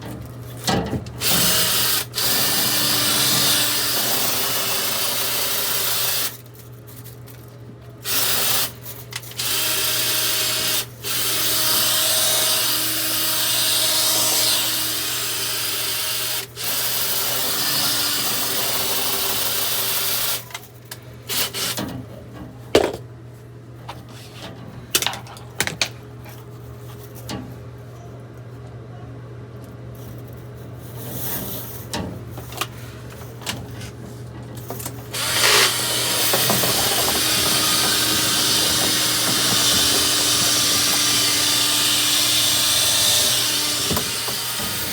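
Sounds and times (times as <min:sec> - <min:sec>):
power drill spinning a brush: 0:35.2 - 0:44.9.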